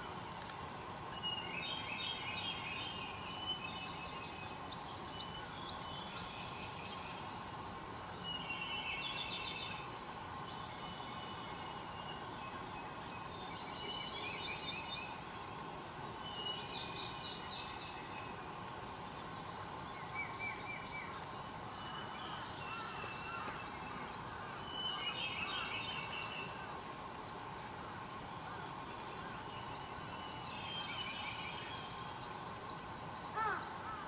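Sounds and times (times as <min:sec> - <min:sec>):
wild birds chirping: 0:28.4 - 0:34.0.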